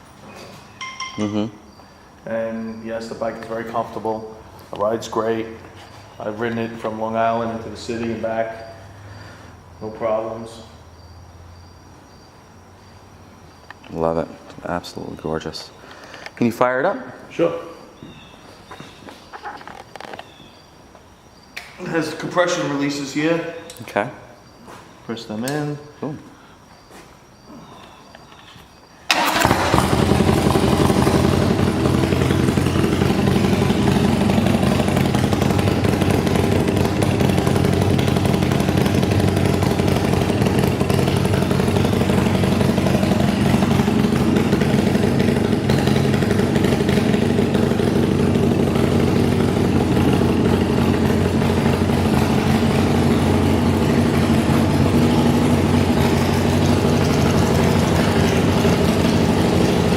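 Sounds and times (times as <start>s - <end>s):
motorcycle engine idling: 29.2s - 59.9s.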